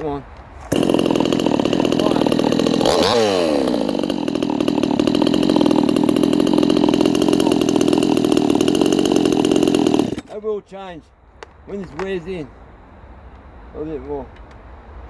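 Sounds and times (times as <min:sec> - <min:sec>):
chainsaw engine revving and idling: 0:00.7 - 0:10.4.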